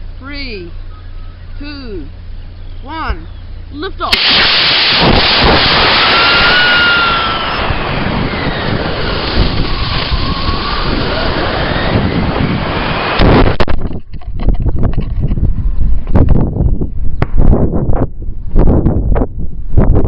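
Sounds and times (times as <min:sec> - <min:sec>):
faint gliding whistles: 0:00.8 - 0:03.7, 0:06.1 - 0:12.7
rocket motor hissing: 0:04.1 - 0:13.7
air rushing past camera: 0:04.1 - 0:20.0.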